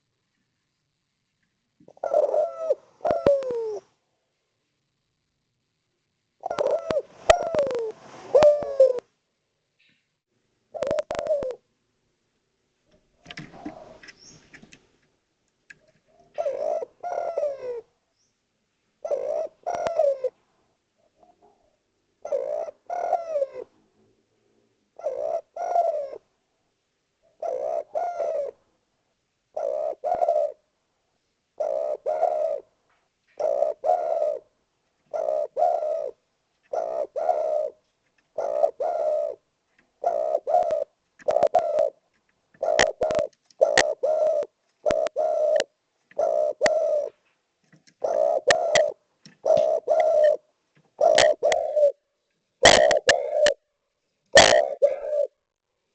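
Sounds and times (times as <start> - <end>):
dove cooing: 1.8 - 3.9, 6.4 - 9.1, 10.7 - 11.7, 13.2 - 14.7, 15.8 - 17.9, 19.0 - 20.4, 21.0 - 23.7, 25.0 - 26.3, 27.2 - 28.6, 29.5 - 30.6, 31.6 - 32.7, 33.4 - 42.0, 42.6 - 47.2, 47.9 - 53.6, 54.3 - 55.4.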